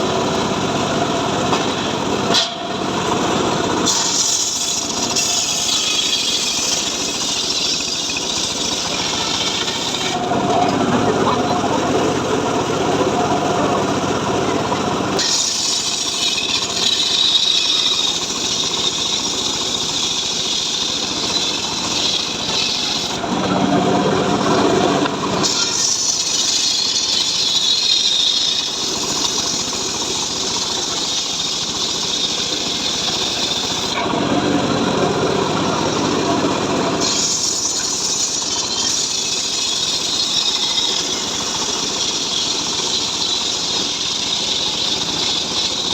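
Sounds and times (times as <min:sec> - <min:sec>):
sawmill engine running: 0:00.0 - 0:45.9
saw blade rasping through wood: 0:03.8 - 0:11.6, 0:15.2 - 0:34.1, 0:36.9 - 0:45.9.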